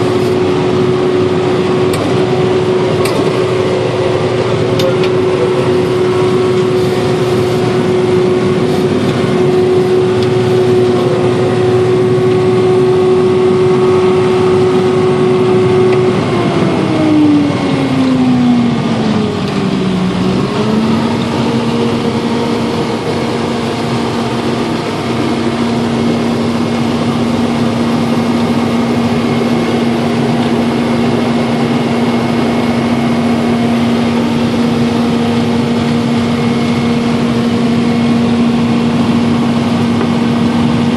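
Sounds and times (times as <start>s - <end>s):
harvester engine hum: 0.0s - 40.9s.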